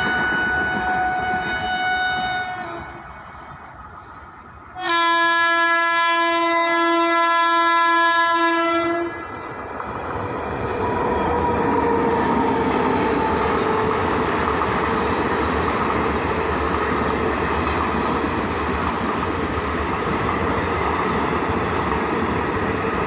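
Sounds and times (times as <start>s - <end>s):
locomotive horn: 0.0s - 3.2s, 4.8s - 9.3s
train wheels rumbling on track: 0.0s - 23.0s.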